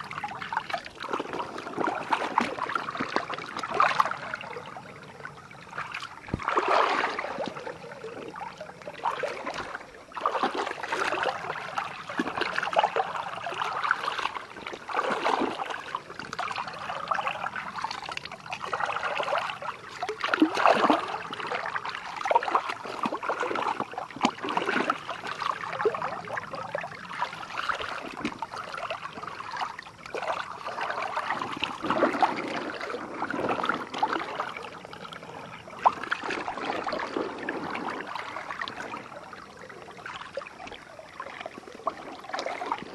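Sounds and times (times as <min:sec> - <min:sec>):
water splashing and trickling: 0:00.0 - 0:42.9.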